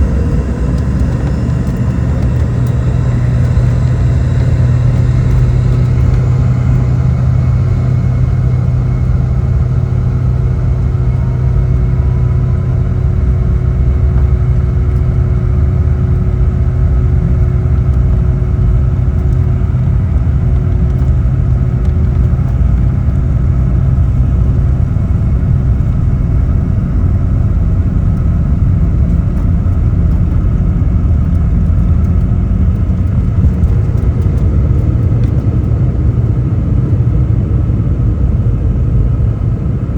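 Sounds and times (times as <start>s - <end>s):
deep rumble: 0.0s - 39.9s
jet engine drone in cabin: 0.0s - 39.9s.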